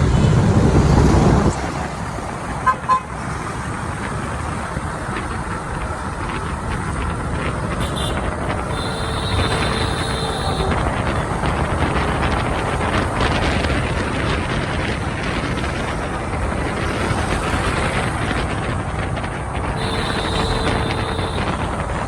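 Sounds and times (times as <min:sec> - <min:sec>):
motorbike engine and wind noise: 0:00.0 - 0:22.0
high steady tone: 0:19.8 - 0:21.6.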